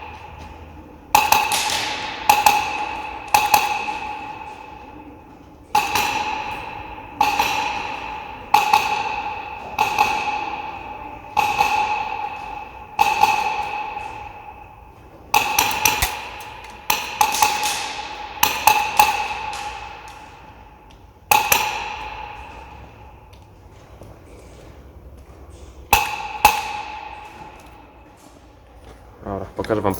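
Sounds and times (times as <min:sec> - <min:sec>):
airsoft rifle shots: 0:01.1 - 0:04.9, 0:05.7 - 0:14.7, 0:15.3 - 0:20.6.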